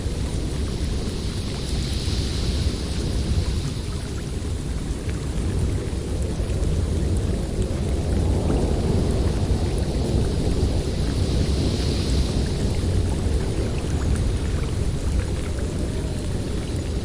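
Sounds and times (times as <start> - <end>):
storm wind rumbling: 0.0 - 17.0
wind hiss: 0.0 - 17.0.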